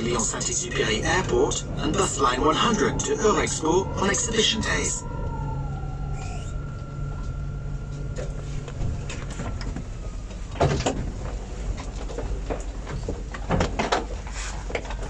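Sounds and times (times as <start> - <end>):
high whine: 0.0 - 12.0
tram electrical hum: 0.0 - 15.0
knocks and rattles: 8.2 - 15.0.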